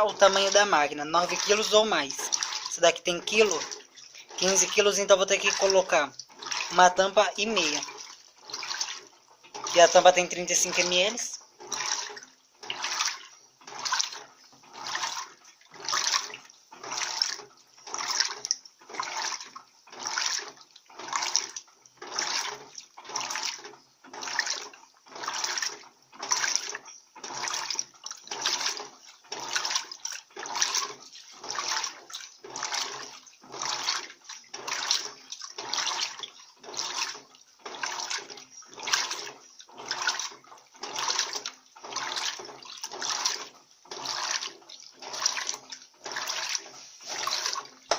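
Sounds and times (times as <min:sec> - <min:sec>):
washing machine agitator swishing: 0:00.0 - 0:47.9.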